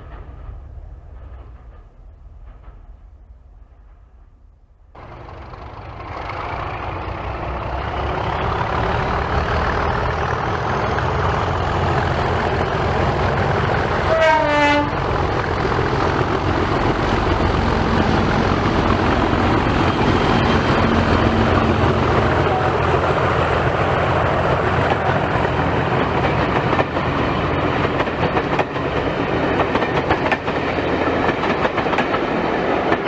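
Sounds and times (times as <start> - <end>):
diesel locomotive engine running: 5.0 - 33.0
locomotive horn blast: 14.0 - 15.1, 22.2 - 23.0.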